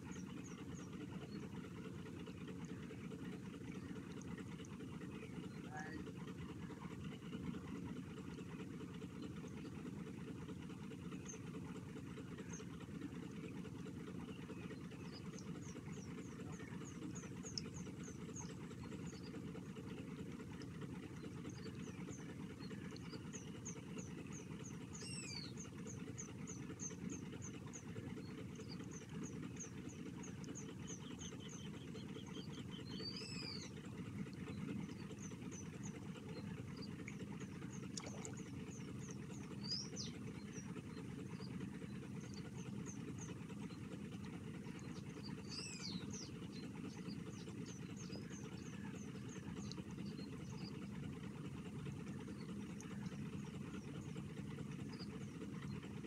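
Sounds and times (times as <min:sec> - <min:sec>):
birds chirping: 0:00.0 - 0:56.0
steady low rumble: 0:10.7 - 0:56.0.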